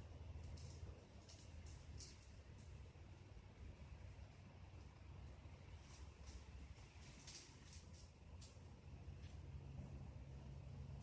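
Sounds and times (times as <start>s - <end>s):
faint low rumble: 0.0s - 11.0s.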